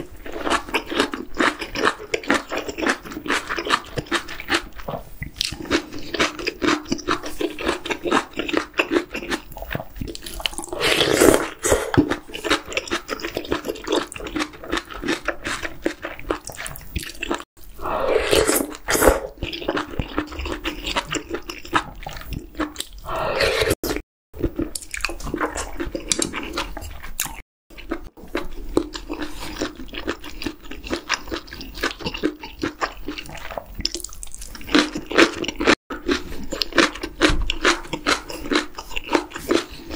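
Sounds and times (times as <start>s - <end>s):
wet chewing and lip smacking: 0.3s - 10.8s, 11.4s - 17.5s, 18.6s - 23.1s, 23.9s - 39.9s
noodle slurping: 5.5s - 24.0s.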